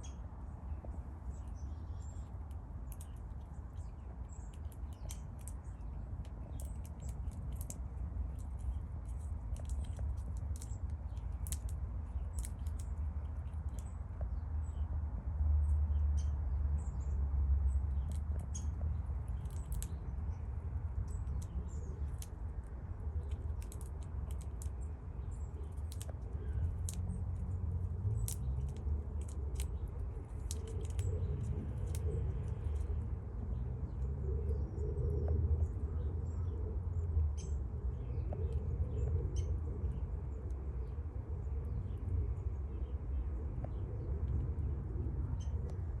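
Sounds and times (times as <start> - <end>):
steady low rumble: 0.0 - 46.0
squirrel gnawing a nut: 1.3 - 14.9, 17.6 - 35.7.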